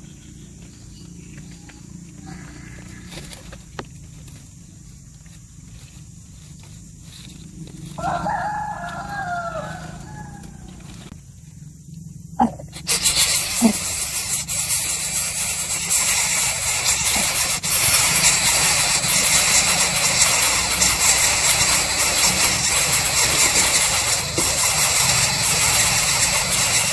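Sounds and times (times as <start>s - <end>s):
loud steady hiss: 1.8s - 11.3s, 12.4s - 26.9s
rooster crowing: 2.1s - 3.4s, 7.8s - 11.1s
sharp clicks: 12.6s - 26.9s.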